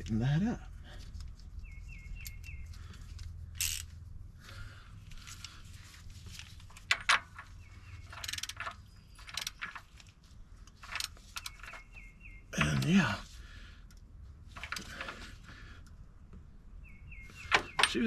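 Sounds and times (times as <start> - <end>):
faint bird chirps: 1.4 - 3.1, 11.1 - 13.3, 16.8 - 18.0
socket wrench clicking: 8.0 - 9.8.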